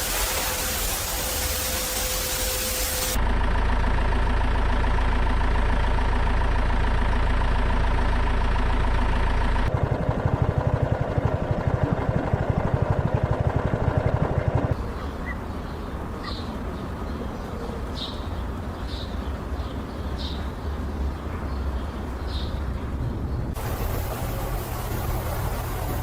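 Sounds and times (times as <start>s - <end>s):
truck engine running: 0.0s - 26.0s
rapid even pulsing: 9.7s - 14.8s, 23.5s - 26.0s
bird chirps: 14.8s - 22.7s.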